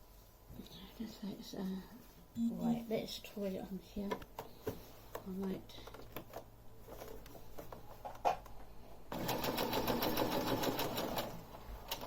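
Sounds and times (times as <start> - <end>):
electric sewing machine stitching: 9.1 - 12.0.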